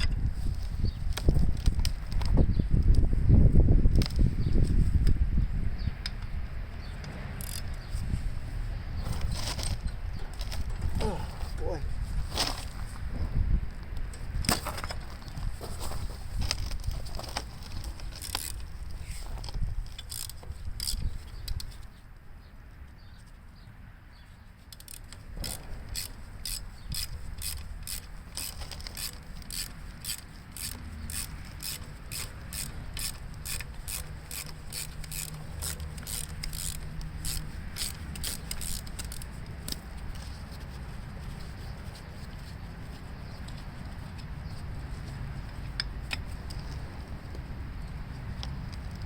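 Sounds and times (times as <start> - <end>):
socket ratchet clicking: 19.9 - 21.8, 24.8 - 40.1.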